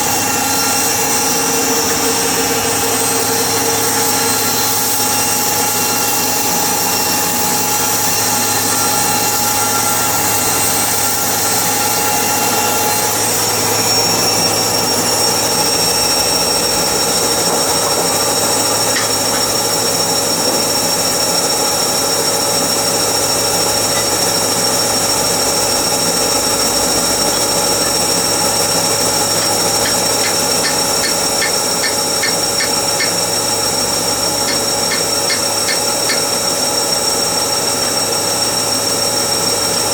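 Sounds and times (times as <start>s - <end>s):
sawmill machinery running: 0.0s - 39.9s
quick regular ticks: 16.7s - 19.8s, 23.0s - 37.1s.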